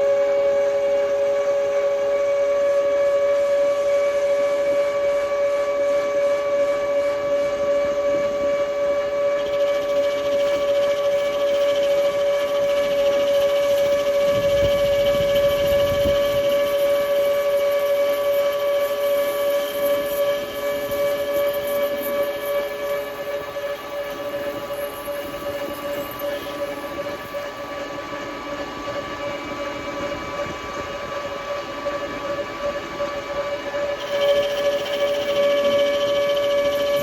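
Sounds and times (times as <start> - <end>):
metal lathe whining: 0.0 - 37.0.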